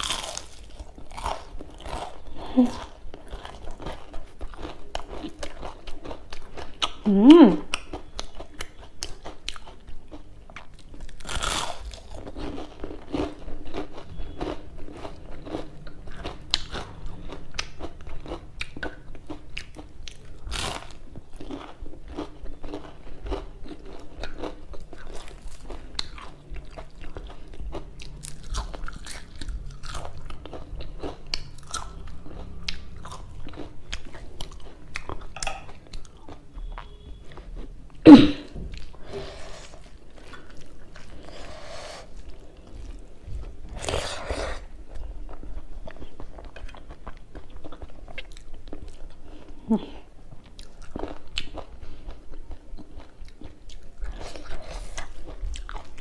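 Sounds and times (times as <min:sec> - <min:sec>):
person crunching fried food: 0:00.0 - 0:07.0, 0:07.7 - 0:36.5, 0:50.5 - 0:56.0.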